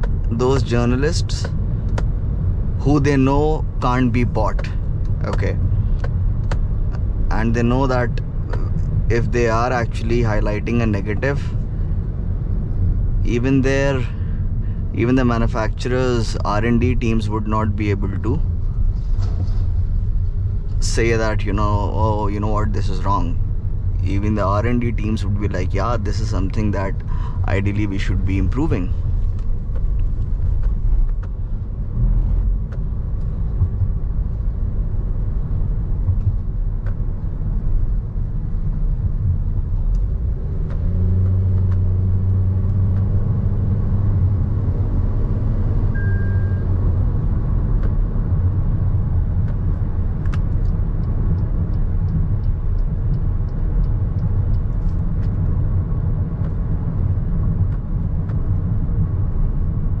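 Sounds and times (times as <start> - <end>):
steady-pitched hum: 0.0 - 40.6
road and tyre rumble: 0.0 - 60.0.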